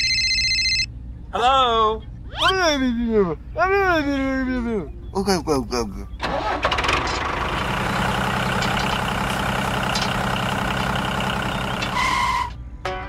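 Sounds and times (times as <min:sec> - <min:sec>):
tractor engine running: 0:06.2 - 0:12.6.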